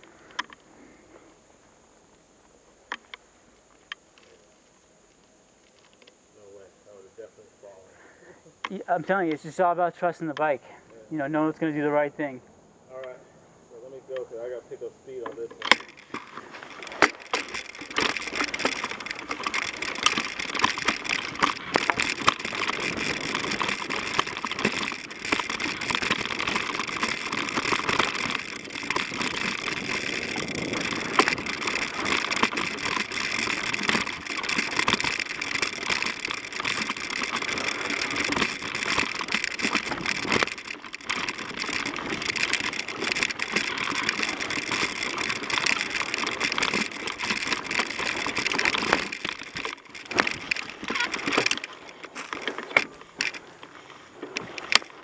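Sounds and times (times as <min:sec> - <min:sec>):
bike clicking and rattling: 0:00.0 - 0:01.3, 0:02.9 - 0:06.2, 0:08.5 - 0:12.4, 0:15.1 - 0:55.0
tyres rushing on dirt: 0:15.6 - 0:55.0.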